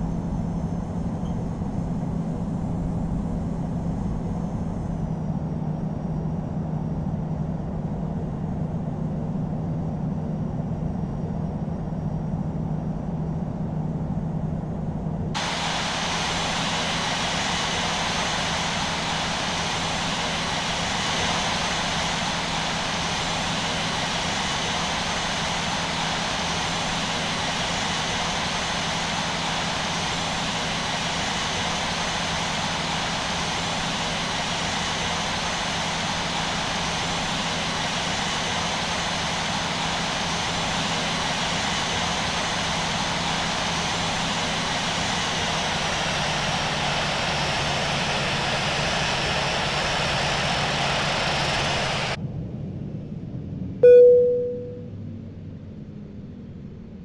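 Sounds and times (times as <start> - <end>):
jet engines running: 0.0 - 5.2, 15.3 - 52.2.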